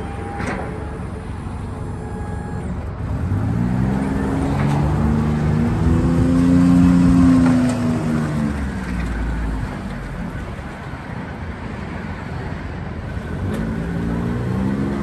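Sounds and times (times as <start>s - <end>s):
utility vehicle engine revving: 2.6s - 10.8s, 13.0s - 15.0s.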